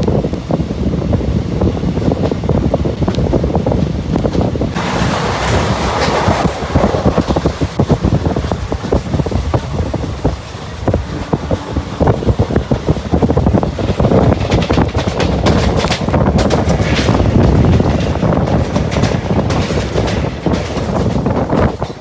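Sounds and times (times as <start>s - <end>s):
train rumbling on rails: 0.0s - 22.0s
wheels clattering: 0.0s - 22.0s
wind buffeting microphone: 0.0s - 22.0s
coach rattling: 0.1s - 22.0s.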